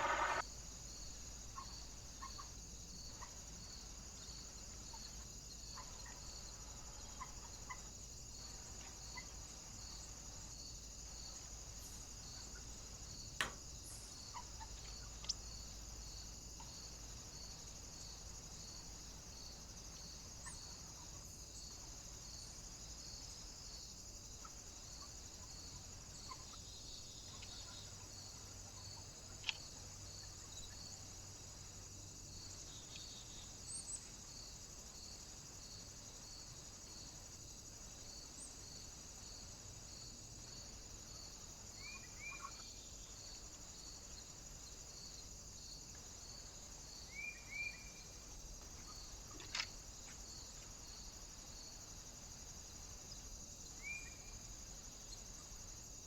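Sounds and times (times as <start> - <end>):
steady high hiss: 0.0 - 14.4.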